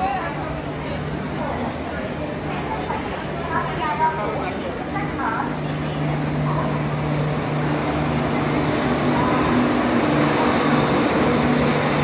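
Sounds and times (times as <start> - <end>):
train running rumble: 4.6 - 12.0.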